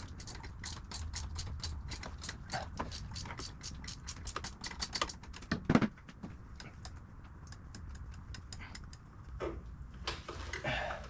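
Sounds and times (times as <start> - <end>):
socket ratchet clicking: 0.0 - 5.2, 6.6 - 9.0
scattered taps and clicks: 0.0 - 9.4.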